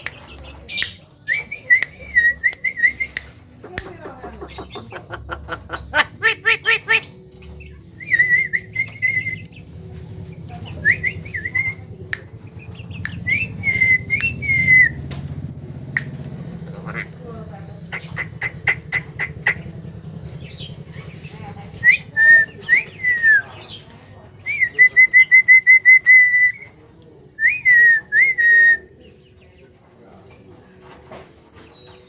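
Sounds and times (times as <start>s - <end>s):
bird whistling: 8.0s - 9.5s, 10.8s - 11.9s, 13.0s - 15.1s, 21.8s - 23.6s.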